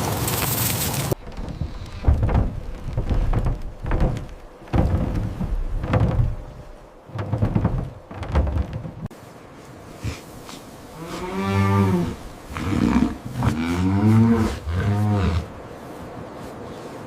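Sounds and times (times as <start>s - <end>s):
cattle mooing: 11.0s - 15.5s.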